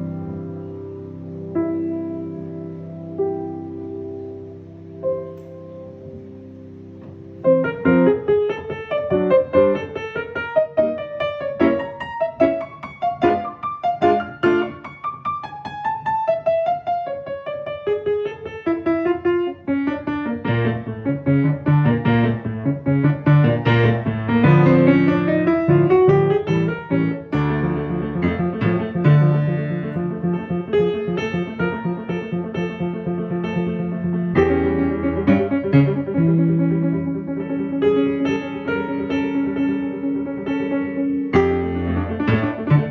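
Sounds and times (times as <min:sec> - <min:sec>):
piano playing: 0:00.0 - 0:42.9.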